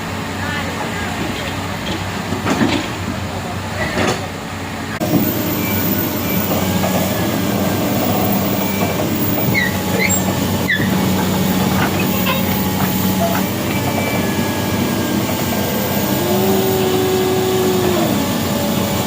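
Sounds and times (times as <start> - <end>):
heavy vehicle engine humming: 0.0 - 19.0
short high squeaks: 8.7 - 11.0.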